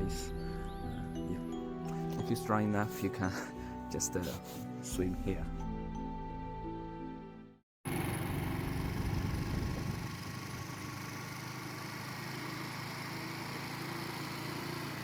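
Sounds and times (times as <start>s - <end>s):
motorcycle engine running: 7.9s - 15.0s.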